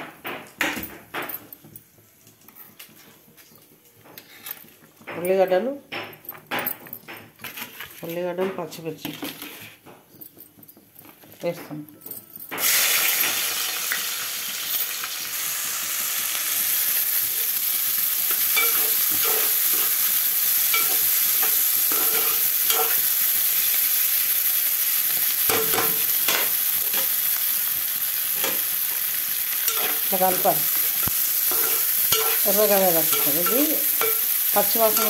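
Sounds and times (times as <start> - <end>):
vegetables sizzling in hot oil: 12.6 - 35.0.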